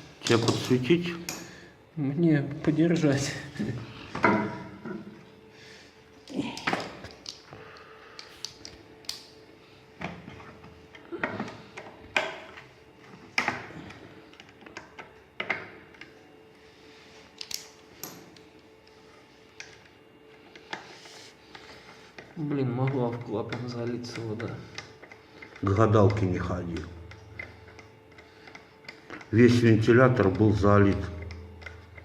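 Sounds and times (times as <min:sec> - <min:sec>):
faint steady hum: 0:00.0 - 0:32.0
tools and metal parts clicking: 0:17.4 - 0:18.4.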